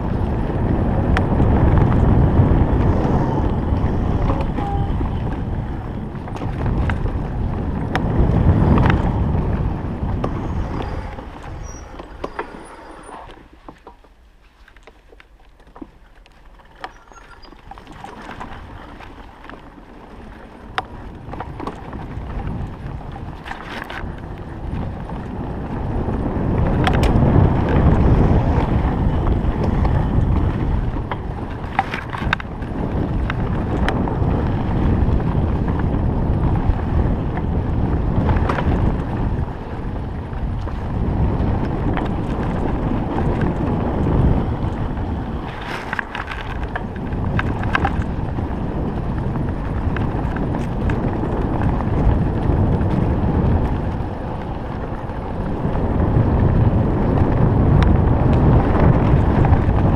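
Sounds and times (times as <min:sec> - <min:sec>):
wind rushing over microphone: 0:00.0 - 0:13.8, 0:16.5 - 0:59.9
tyre rumble: 0:00.0 - 0:59.9.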